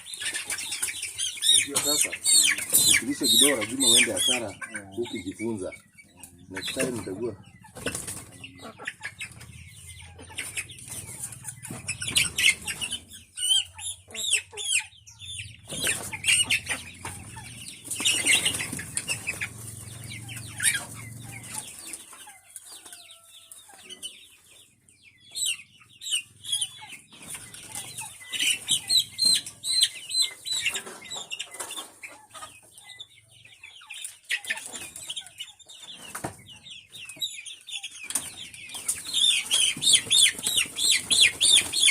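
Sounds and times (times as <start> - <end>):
chickens clucking: 0.0 - 41.9
wings flapping: 17.9 - 19.8.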